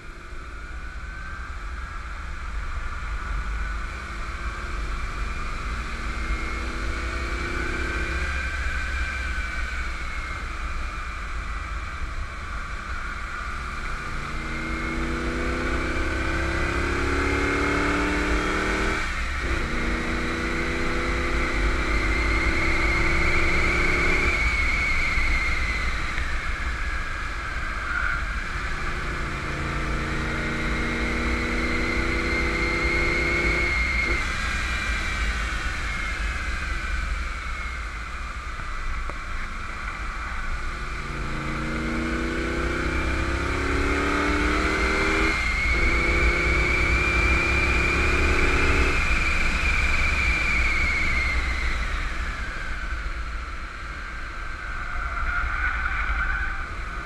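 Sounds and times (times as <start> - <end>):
high whine: 0.0 - 57.0
road and wind rumble: 0.0 - 57.0
car engine accelerating hard: 13.2 - 57.0.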